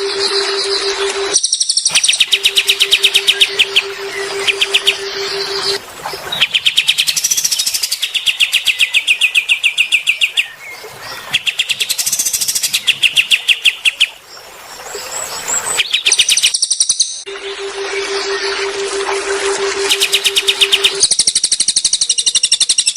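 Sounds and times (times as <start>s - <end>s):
low pulsing tone: 0.0s - 5.8s, 17.3s - 21.0s
songbird buzzy trills: 0.0s - 22.9s.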